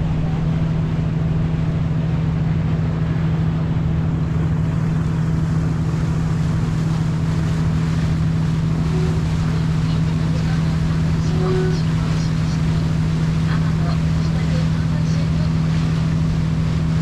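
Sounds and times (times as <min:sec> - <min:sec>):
rush of noise: 0:00.0 - 0:13.4
boat engine droning: 0:00.0 - 0:17.0.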